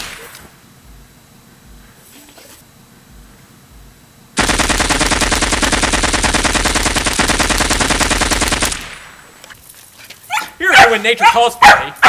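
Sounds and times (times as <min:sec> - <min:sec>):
rapid machine-gun fire: 0:04.4 - 0:09.2.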